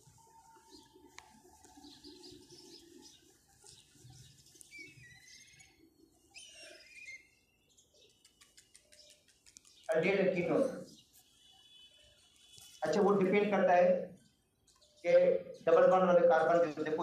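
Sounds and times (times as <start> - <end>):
faint bird chirps: 0.2 - 12.8.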